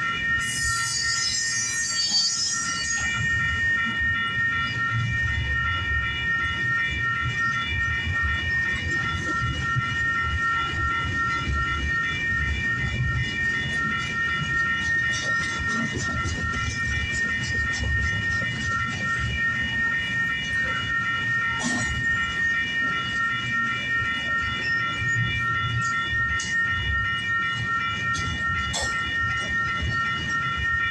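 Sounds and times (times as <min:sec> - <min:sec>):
high ringing tone: 0:00.0 - 0:30.9
train wheels rumbling on rail: 0:07.4 - 0:22.4.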